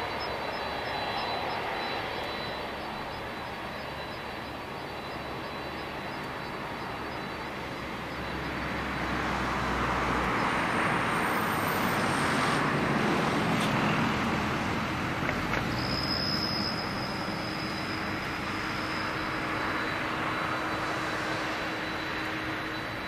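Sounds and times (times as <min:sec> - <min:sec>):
jet engine roar: 0:00.0 - 0:23.0.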